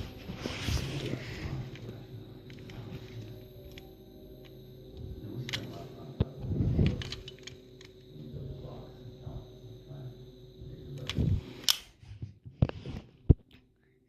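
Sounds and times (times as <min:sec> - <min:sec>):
toy cars being handled: 0:06.8 - 0:08.0.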